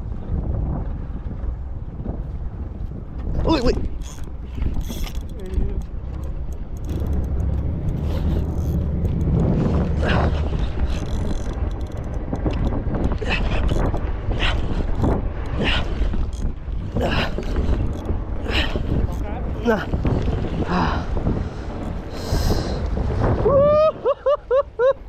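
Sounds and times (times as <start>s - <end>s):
wind and boat rumble: 0.0s - 25.0s
fishing reel clicking: 3.9s - 12.8s, 13.6s - 14.1s, 14.8s - 19.8s.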